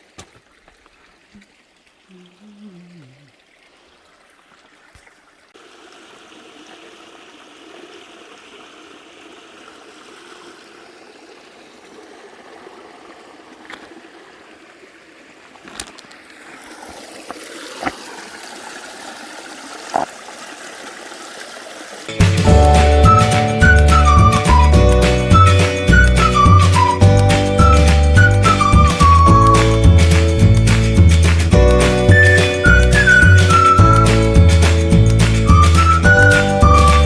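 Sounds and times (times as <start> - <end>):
stream flowing over rocks: 0.0 - 37.0
music: 22.1 - 37.0.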